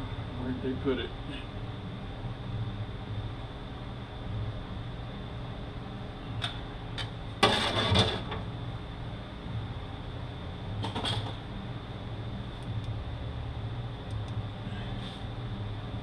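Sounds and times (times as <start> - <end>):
steady shop hum: 0.0 - 16.0.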